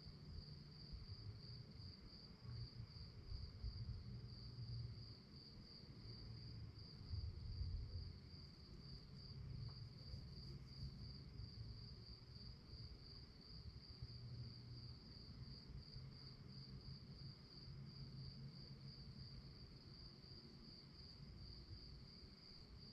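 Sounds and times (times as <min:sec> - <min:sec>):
crickets chirping: 0:00.0 - 0:22.9.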